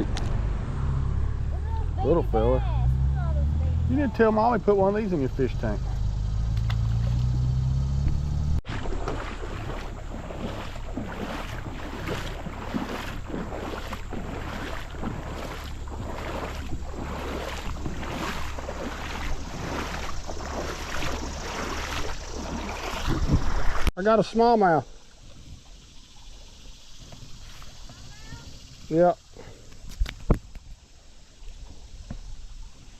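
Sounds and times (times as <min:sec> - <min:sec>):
rushing creek water: 0:08.6 - 0:32.9
wind on microphone: 0:09.4 - 0:23.9.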